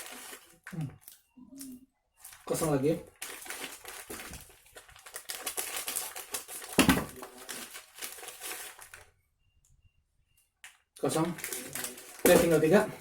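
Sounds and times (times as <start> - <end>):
plastic packets crinkling: 0.0 - 9.1, 11.0 - 13.0.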